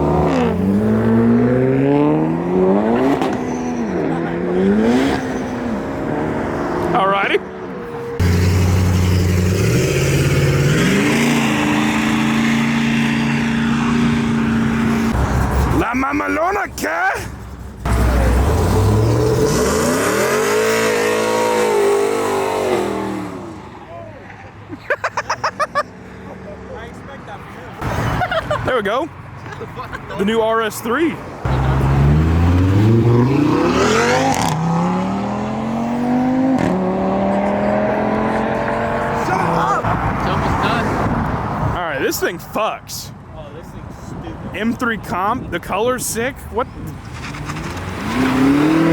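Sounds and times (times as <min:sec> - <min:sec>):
car engine revving at full throttle: 0:00.0 - 0:15.8, 0:17.8 - 0:23.7, 0:31.4 - 0:41.8, 0:47.1 - 0:48.9.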